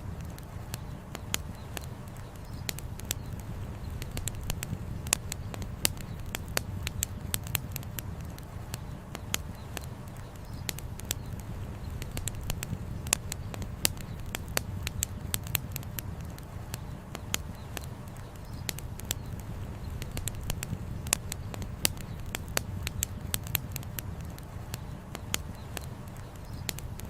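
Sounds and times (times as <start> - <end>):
campfire crackling and popping: 0.0 - 27.0.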